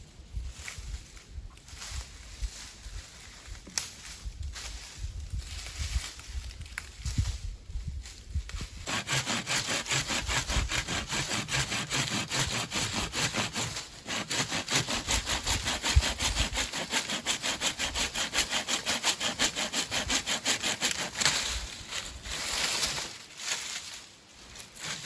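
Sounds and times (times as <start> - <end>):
hand saw cutting wood: 8.8 - 23.1, 24.6 - 25.0.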